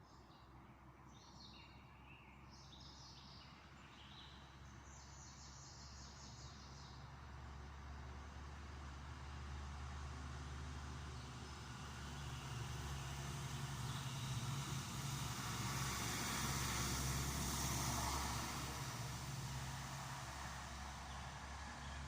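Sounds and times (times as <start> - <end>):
vehicle passing by: 8.4 - 22.0.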